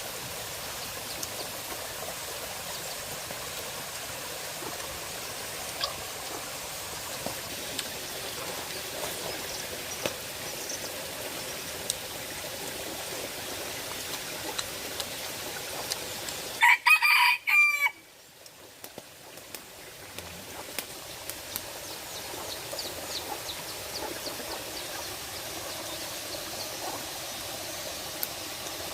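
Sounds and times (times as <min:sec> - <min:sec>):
rooster crowing: 0:16.6 - 0:18.0.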